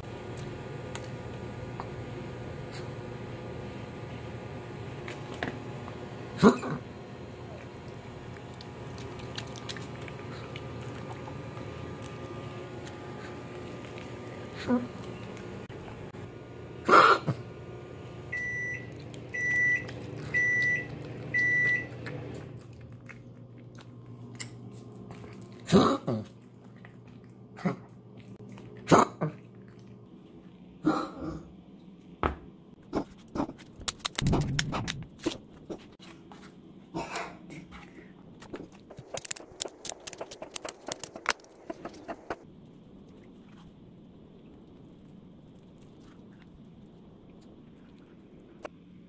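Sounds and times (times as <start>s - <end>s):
microwave hum: 0.0s - 43.1s
microwave beeps: 18.3s - 22.0s.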